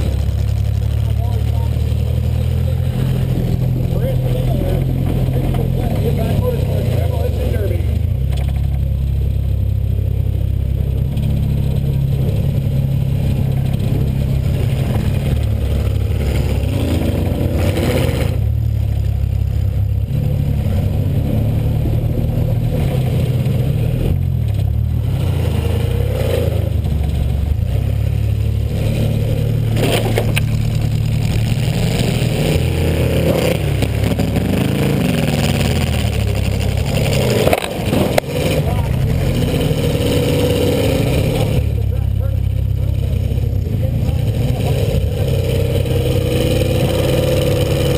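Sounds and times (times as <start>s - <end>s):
car engine revving: 0.0s - 47.9s
clattering and scraping: 28.7s - 40.2s.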